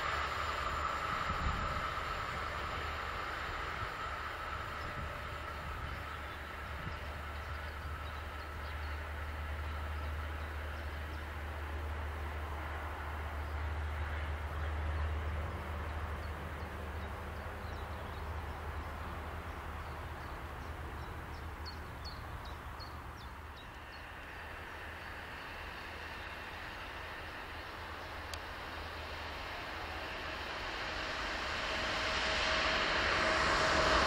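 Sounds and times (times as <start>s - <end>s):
approaching train rumble and rail hiss: 0.0s - 34.0s
low rumble: 0.0s - 34.0s
bird chirping: 14.5s - 26.4s.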